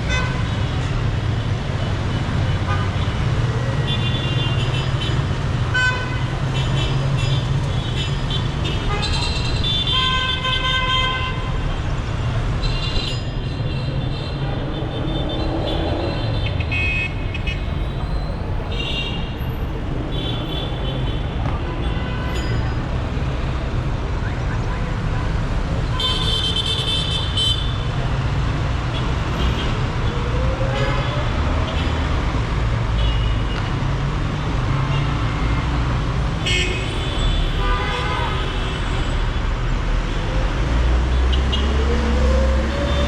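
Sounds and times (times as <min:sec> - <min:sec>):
dense city traffic: 0:00.0 - 0:43.0
car horns honking: 0:25.8 - 0:27.8.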